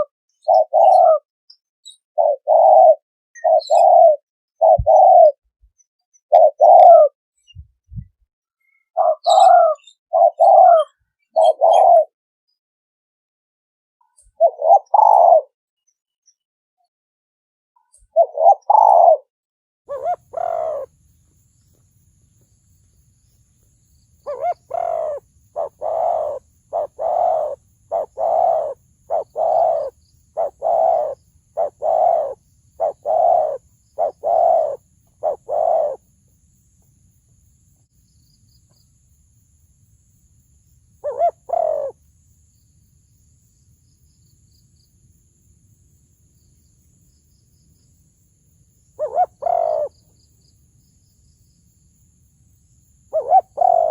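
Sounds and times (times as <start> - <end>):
dove cooing: 0.0 - 1.3, 2.2 - 5.4, 6.3 - 7.2, 9.0 - 12.1, 14.4 - 15.5, 18.2 - 19.3, 19.9 - 20.9, 24.2 - 36.0, 41.0 - 42.0, 49.0 - 50.1, 53.1 - 53.9.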